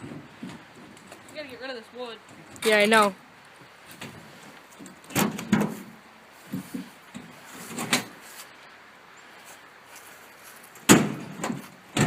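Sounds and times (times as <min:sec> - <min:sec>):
knocks and clunks of handling: 0:03.9 - 0:08.2, 0:10.8 - 0:12.0.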